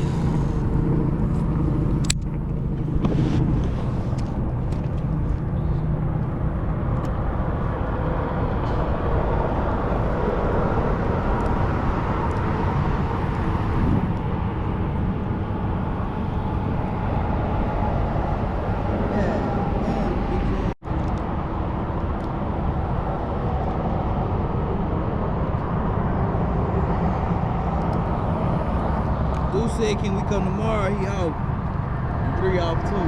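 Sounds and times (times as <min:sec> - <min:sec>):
low outdoor rumble: 0:00.0 - 0:33.0
sharp click: 0:02.0 - 0:02.3.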